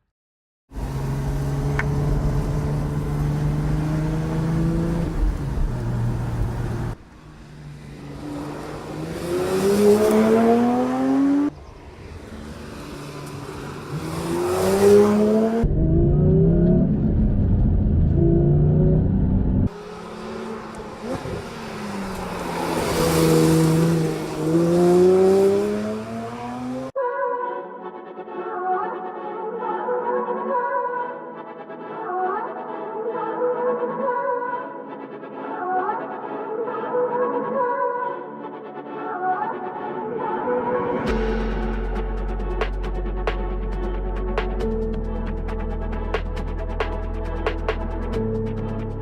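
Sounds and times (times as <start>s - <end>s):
car engine accelerating hard: 0.8s - 27.0s.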